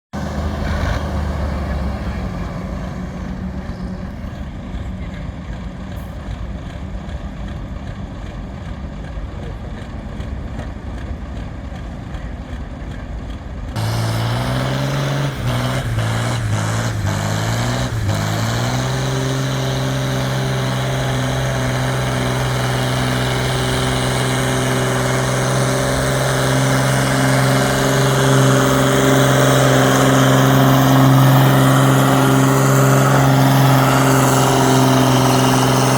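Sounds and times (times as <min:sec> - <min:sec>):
tractor engine revving: 0:00.0 - 0:06.0, 0:13.8 - 0:35.9.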